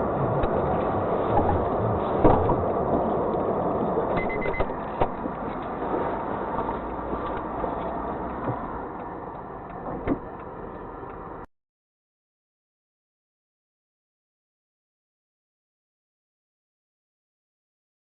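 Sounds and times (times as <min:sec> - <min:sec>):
car engine and road noise: 0:00.0 - 0:11.5.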